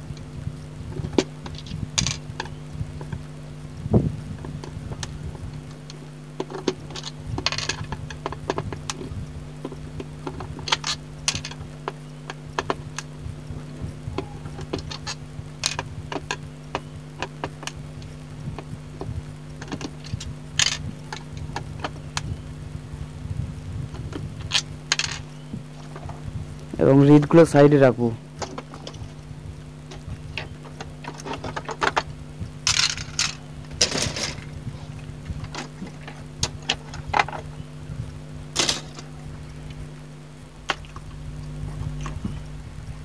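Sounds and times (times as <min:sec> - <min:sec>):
steady low hum: 0:00.0 - 0:43.0
keyboard parts clicking and clattering: 0:05.8 - 0:13.1, 0:32.7 - 0:34.5, 0:38.6 - 0:39.1.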